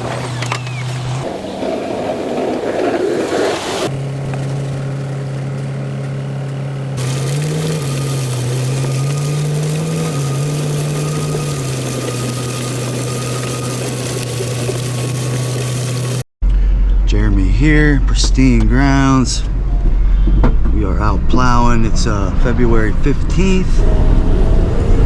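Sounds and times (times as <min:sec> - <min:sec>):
vehicle engine running at low revs: 0:00.0 - 0:01.5, 0:03.9 - 0:16.3, 0:23.8 - 0:25.0.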